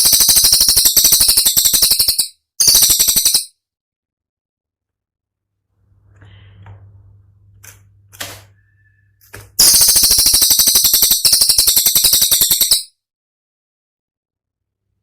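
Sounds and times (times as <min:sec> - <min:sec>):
songbird rattling trill: 0:00.0 - 0:03.5, 0:09.6 - 0:12.9.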